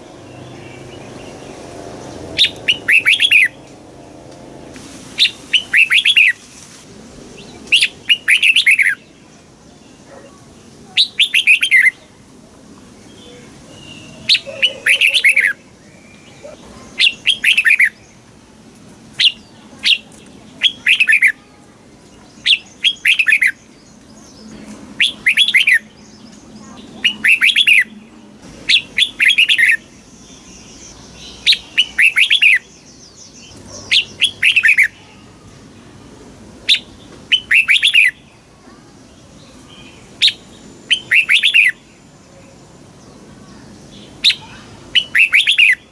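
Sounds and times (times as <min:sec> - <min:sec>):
bulbul whistled song: 0:02.4 - 0:03.6, 0:05.2 - 0:06.4, 0:07.6 - 0:09.0, 0:25.0 - 0:25.9, 0:27.0 - 0:28.0, 0:28.7 - 0:29.9, 0:31.4 - 0:32.8, 0:36.7 - 0:38.2, 0:40.2 - 0:41.8, 0:44.2 - 0:45.9.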